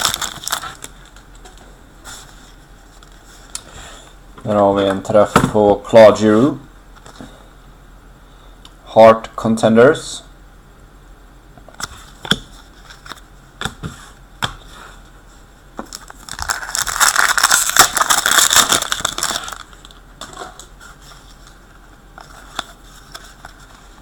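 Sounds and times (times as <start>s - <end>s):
foil wrapper crinkling and tearing: 0.0s - 1.2s, 15.9s - 20.0s.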